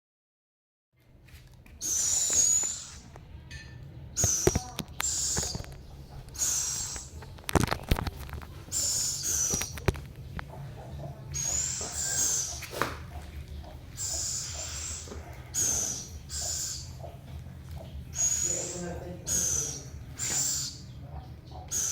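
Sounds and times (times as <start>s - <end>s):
owl hissing screeches: 1.8s - 3.1s, 4.2s - 5.7s, 6.4s - 7.2s, 8.7s - 9.9s, 11.3s - 13.2s, 13.9s - 17.2s, 18.1s - 21.0s, 21.7s - 21.9s.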